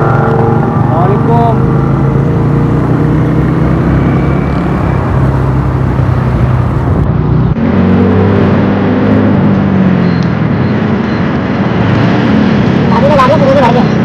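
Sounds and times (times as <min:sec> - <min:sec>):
motorcycle engine running: 0:00.0 - 0:07.7
road and wind noise: 0:00.0 - 0:14.0.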